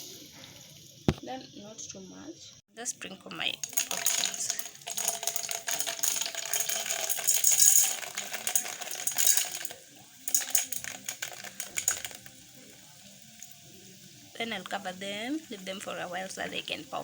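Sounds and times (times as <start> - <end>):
popcorn rattling in metal pot: 3.3 - 12.9.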